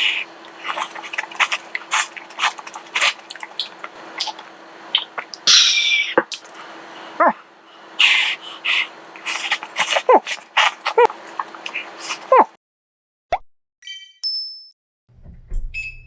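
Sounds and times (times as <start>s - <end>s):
crunchy chewing: 0.0s - 5.5s, 6.2s - 7.1s, 8.0s - 12.5s
slurping noodles: 0.0s - 5.5s, 8.0s - 12.6s.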